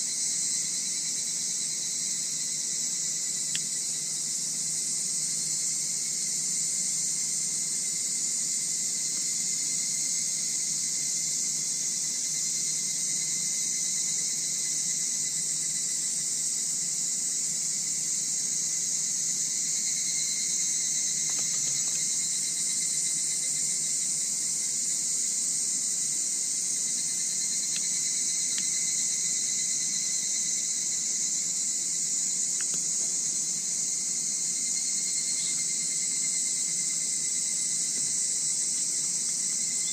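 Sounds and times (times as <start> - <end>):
insects chirping at night: 0.0 - 39.9
faint ticks: 3.5 - 3.7, 27.7 - 27.9.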